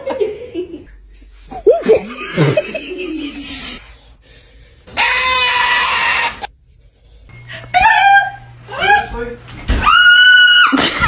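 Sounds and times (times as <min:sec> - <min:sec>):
parrot harsh screech: 0:05.0 - 0:06.5
parrot wavering calls: 0:05.0 - 0:06.5.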